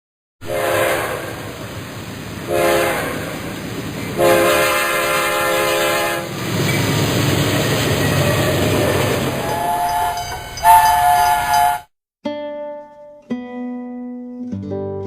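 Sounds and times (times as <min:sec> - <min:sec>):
steam whistle blasts: 0:00.4 - 0:01.6, 0:02.5 - 0:03.5, 0:04.2 - 0:06.3, 0:09.3 - 0:11.9
low train rumble: 0:00.4 - 0:11.9.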